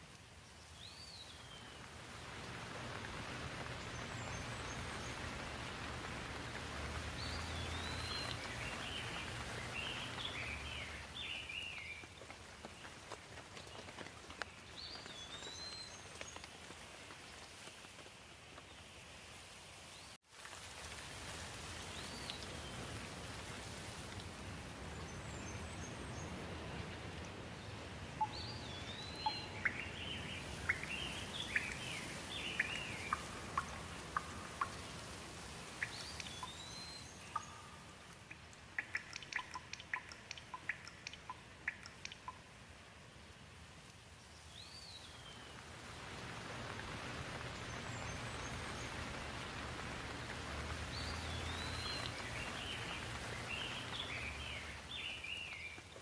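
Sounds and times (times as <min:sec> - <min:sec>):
steady rain falling: 0:00.0 - 0:56.0
water drips tapping: 0:02.4 - 0:16.6, 0:28.2 - 0:42.5
bird chirps: 0:07.2 - 0:12.1, 0:28.2 - 0:34.8, 0:35.8 - 0:42.4.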